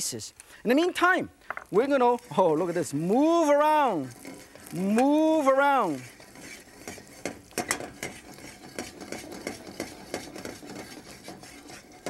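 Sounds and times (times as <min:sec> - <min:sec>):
meat sizzling in oil: 0:00.9 - 0:12.0
utensil scraping a wok: 0:01.4 - 0:12.0.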